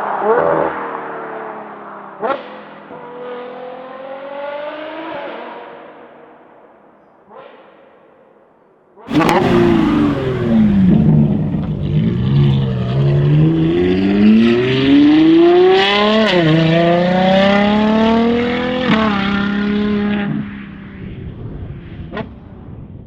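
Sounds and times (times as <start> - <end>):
car engine accelerating hard: 9.1 - 22.6.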